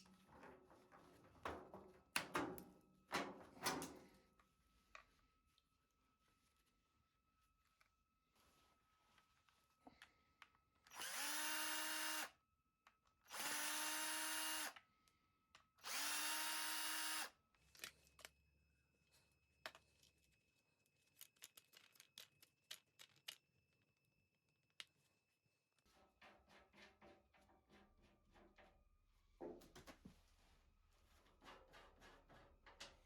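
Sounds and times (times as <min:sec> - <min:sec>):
cordless drill whining: 0:10.9 - 0:12.3, 0:13.3 - 0:14.8, 0:15.8 - 0:17.3.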